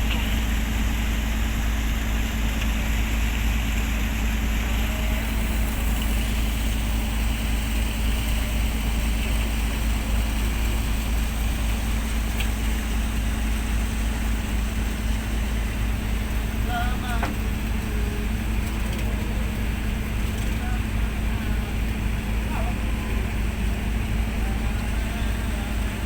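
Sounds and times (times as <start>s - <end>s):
boat engine rumbling: 0.0s - 26.0s.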